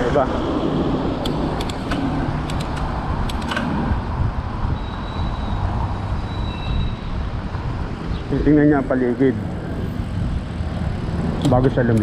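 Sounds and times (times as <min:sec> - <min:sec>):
road traffic rumble: 0:00.0 - 0:12.0
wind noise: 0:00.0 - 0:12.0
sharp clicks: 0:01.2 - 0:04.0, 0:11.4 - 0:12.0.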